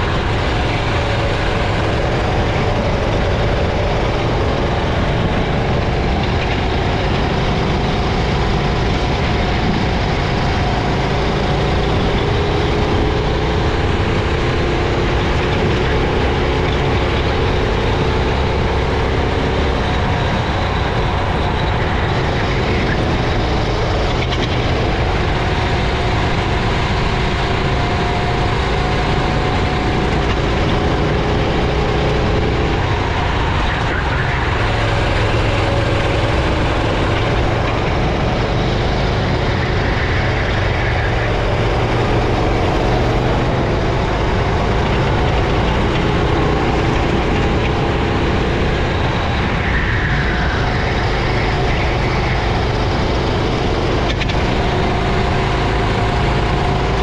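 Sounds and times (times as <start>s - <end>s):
racing kart engine: 0.0s - 57.0s.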